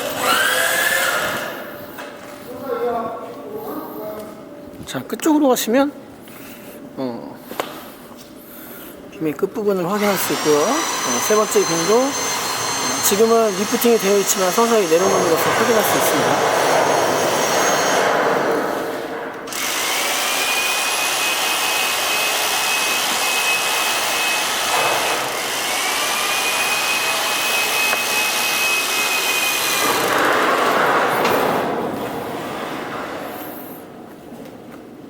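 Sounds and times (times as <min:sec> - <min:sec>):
electric hoist motor whining: 0:00.0 - 0:01.8, 0:09.9 - 0:33.8
steady loud noise: 0:10.0 - 0:34.1.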